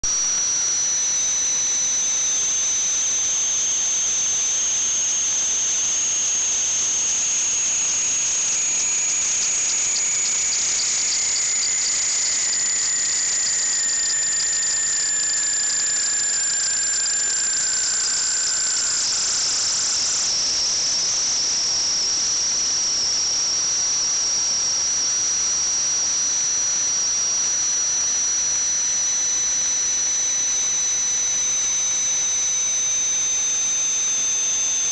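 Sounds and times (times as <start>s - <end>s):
high-pitched whistle: 7.5s - 21.5s.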